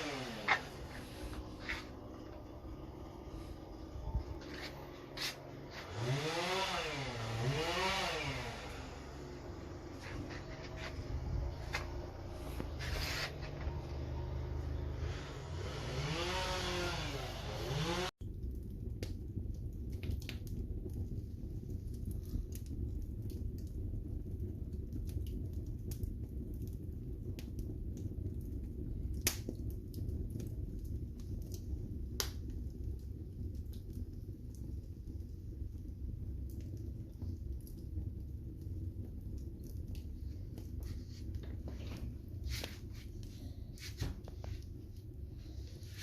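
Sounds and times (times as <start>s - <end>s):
wood fire crackling and popping: 0.0s - 15.5s, 18.1s - 46.0s
rising and falling whine: 0.0s - 18.1s
low fire rumble: 0.0s - 46.0s.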